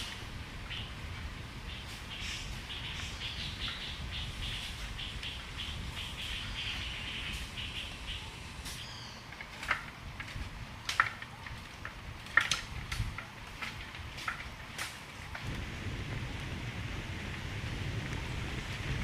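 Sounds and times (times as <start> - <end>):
low steady rumble: 0.0 - 19.0
birds chirping: 1.6 - 9.8.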